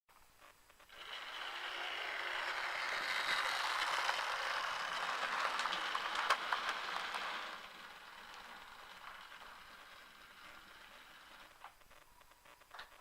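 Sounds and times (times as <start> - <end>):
model train rattling whir: 0.7 - 12.9
model train sharp clicks: 1.1 - 10.0.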